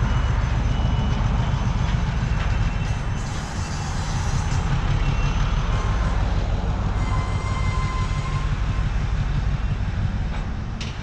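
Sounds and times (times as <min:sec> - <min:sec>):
train wheels rumbling on track: 0:00.0 - 0:11.0
faint high squeal: 0:07.0 - 0:08.6.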